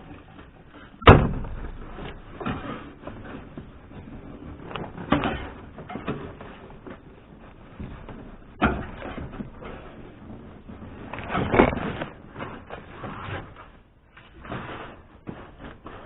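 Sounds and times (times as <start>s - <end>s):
rustling: 0.0s - 16.0s
sharp bang: 1.0s - 1.8s.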